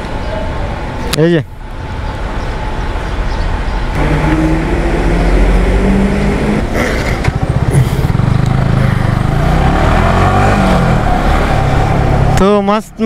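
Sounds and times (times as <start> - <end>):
motorcycle engine accelerating: 4.0 - 12.4.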